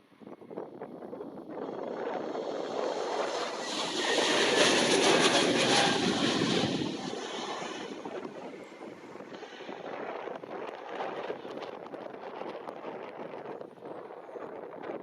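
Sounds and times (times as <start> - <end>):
jet airliner roar passing: 1.4 - 11.7.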